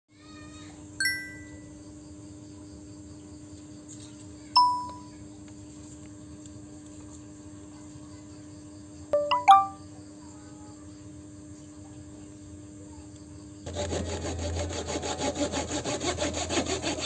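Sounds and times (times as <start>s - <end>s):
chime-like pings: 1.0s - 1.7s, 4.6s - 5.1s, 9.2s - 9.8s.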